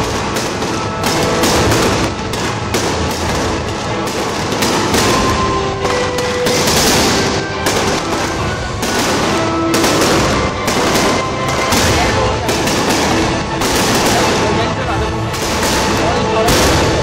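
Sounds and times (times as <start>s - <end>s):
fireworks crackling bangs: 0.0s - 17.0s
sharp firework bursts: 0.0s - 17.0s.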